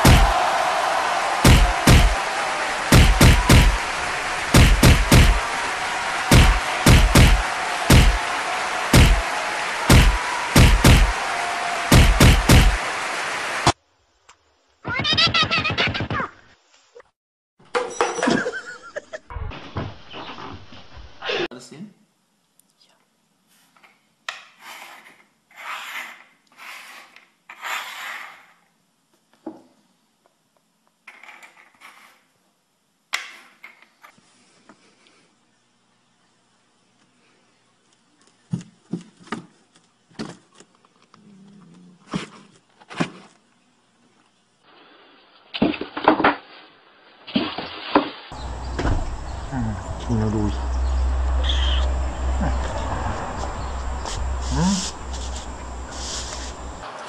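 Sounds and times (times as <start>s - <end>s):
sharp knock on wood: 0.0s - 0.4s, 1.4s - 2.2s, 2.9s - 3.8s, 4.5s - 5.4s, 6.3s - 8.2s, 9.0s - 9.2s, 9.9s - 11.1s, 11.9s - 12.8s
shells scraping on wooden table: 24.6s - 28.6s, 31.1s - 32.2s.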